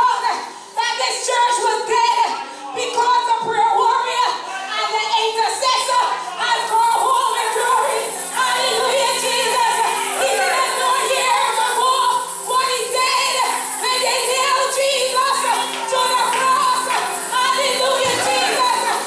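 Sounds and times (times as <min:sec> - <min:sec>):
woman singing gospel: 0:00.0 - 0:19.0
instrumental accompaniment: 0:06.6 - 0:19.0.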